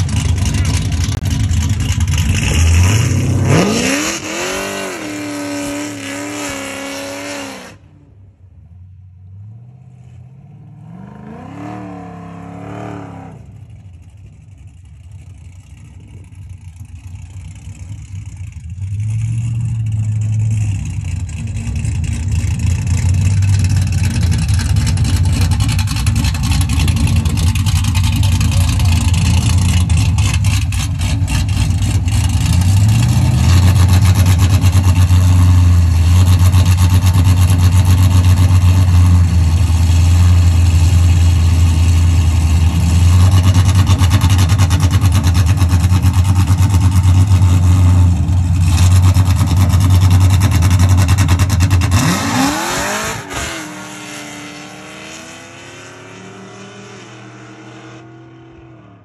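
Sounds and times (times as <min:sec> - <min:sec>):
car engines idling loudly: 0:00.0 - 0:02.8, 0:13.4 - 0:52.2
car engines revving at full throttle: 0:00.0 - 0:59.0
distant engine revving: 0:02.0 - 0:07.9, 0:10.6 - 0:13.6, 0:43.0 - 0:59.0.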